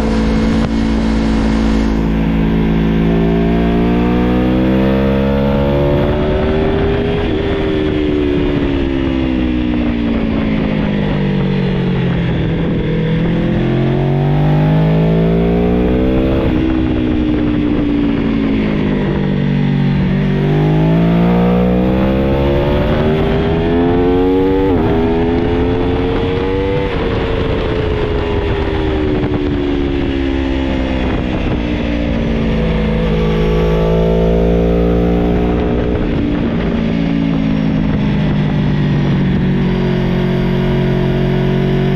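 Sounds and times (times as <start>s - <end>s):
motorcycle engine revving: 0.0s - 41.9s
rushing wind noise: 0.0s - 41.9s.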